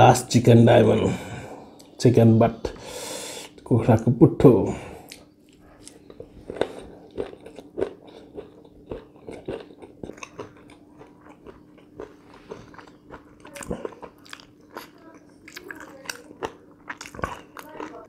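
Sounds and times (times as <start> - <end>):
wet chewing with crisp crunches: 5.1 - 18.0.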